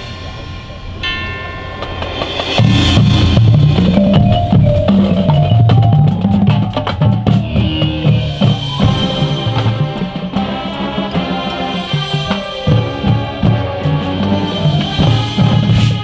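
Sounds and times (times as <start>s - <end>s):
marching band playing: 1.8s - 16.0s
sharp drum hits: 1.8s - 16.0s
bass drum: 2.6s - 12.0s.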